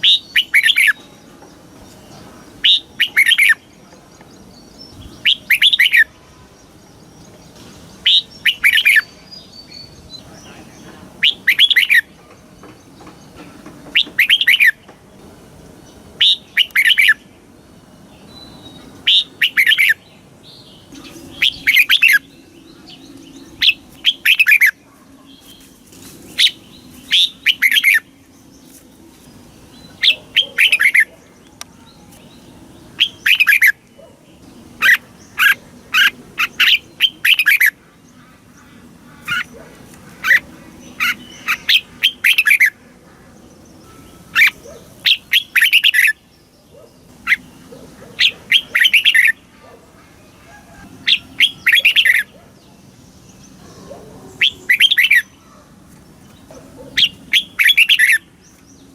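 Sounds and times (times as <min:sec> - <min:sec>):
bird singing whistled notes: 0:00.0 - 0:01.2, 0:04.9 - 0:07.2, 0:18.2 - 0:24.8, 0:26.4 - 0:28.1, 0:32.1 - 0:33.8.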